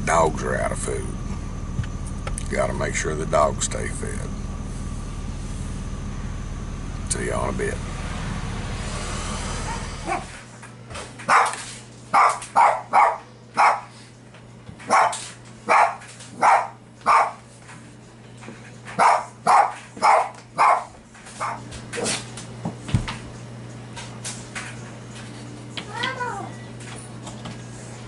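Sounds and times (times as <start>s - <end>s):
low rumble: 0.0s - 10.6s
dog barking: 9.6s - 10.4s, 11.3s - 14.0s, 14.9s - 17.4s, 19.0s - 22.2s.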